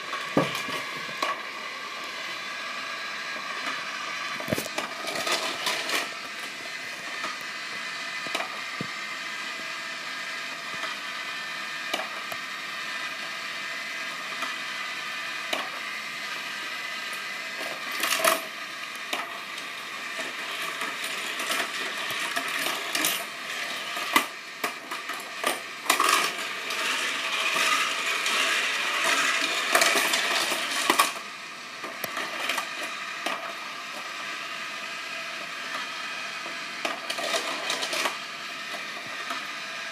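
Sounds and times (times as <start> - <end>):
steady whirring hum: 0.0 - 39.9
toy cars clattering on plastic track: 4.4 - 6.2, 17.1 - 31.2, 31.8 - 34.1, 35.7 - 39.5.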